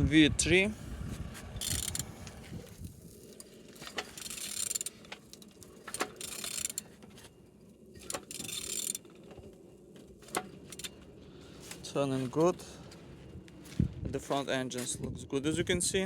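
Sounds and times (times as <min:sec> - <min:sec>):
ratchet wrench clicking and rasping: 0:01.6 - 0:02.3, 0:03.9 - 0:06.9, 0:08.0 - 0:09.0.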